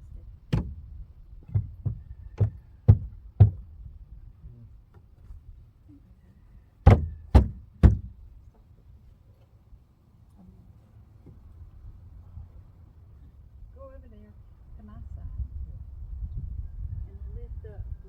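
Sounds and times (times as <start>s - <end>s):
knocks on wooden panels: 0.5s - 0.8s, 1.4s - 3.8s, 6.8s - 8.2s.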